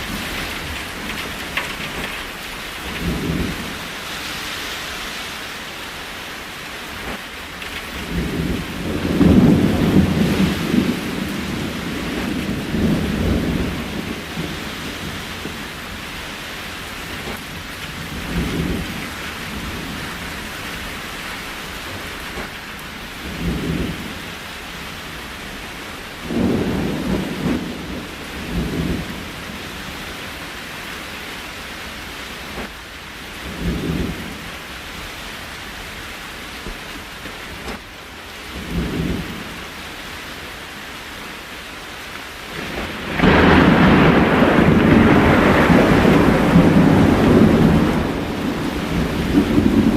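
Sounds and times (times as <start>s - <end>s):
low thunder rumbles: 0.0s - 4.0s, 7.0s - 30.5s, 32.4s - 35.0s, 38.4s - 39.7s, 42.5s - 49.9s
steady rain: 0.0s - 49.9s.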